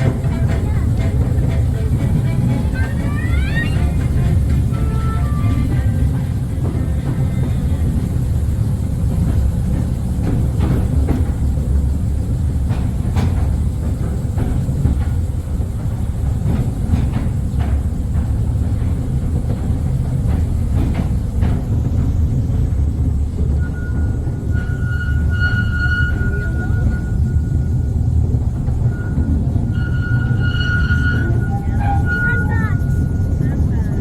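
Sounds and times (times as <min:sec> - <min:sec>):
train rumbling: 0:00.0 - 0:34.0
wheels clicking on rails: 0:00.0 - 0:34.0
wheels squealing on rails: 0:00.0 - 0:34.0.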